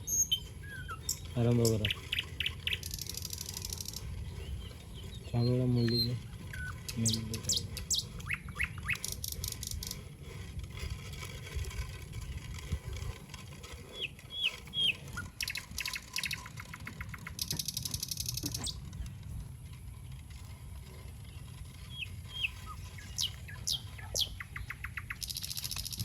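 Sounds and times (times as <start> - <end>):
fast clicking bird trills: 0.0 - 10.0, 13.9 - 19.2, 21.8 - 26.0
birds chirping: 0.0 - 11.5, 13.2 - 26.0.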